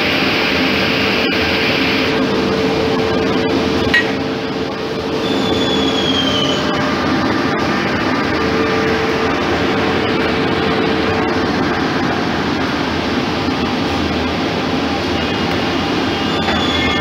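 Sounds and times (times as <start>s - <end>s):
woodworking machinery humming: 0.0s - 17.0s
high squeal: 5.2s - 7.0s, 15.2s - 17.0s.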